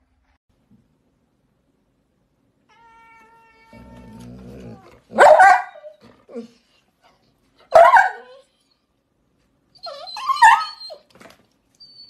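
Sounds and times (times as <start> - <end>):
animal whining: 2.8 - 7.2, 9.8 - 11.1
low growl: 3.7 - 5.2.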